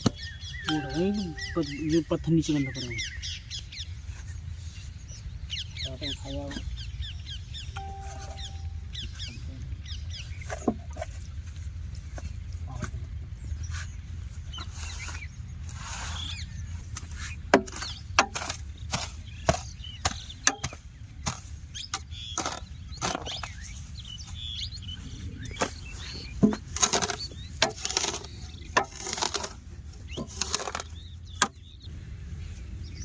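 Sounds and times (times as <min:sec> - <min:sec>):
steady low hum: 0:07.4 - 0:14.5.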